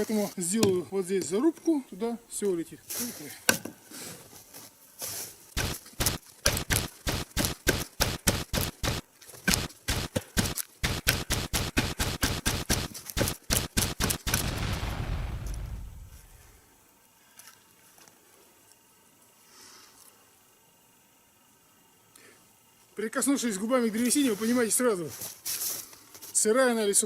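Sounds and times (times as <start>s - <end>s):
axe strikes on tree trunk: 5.6s - 14.4s
tree falling with crackling crash: 5.6s - 16.6s.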